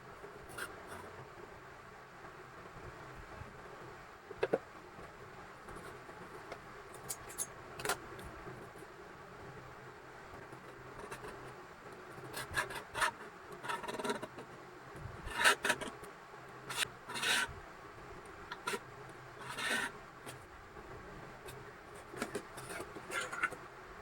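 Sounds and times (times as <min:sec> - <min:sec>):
scraping and rubbing strokes: 0:16.6 - 0:17.6, 0:18.5 - 0:20.5, 0:21.4 - 0:23.6.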